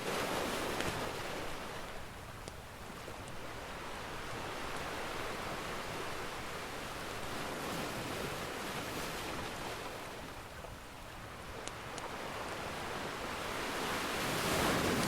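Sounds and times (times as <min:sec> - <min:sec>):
ocean surf washing in: 0:11.9 - 0:15.0.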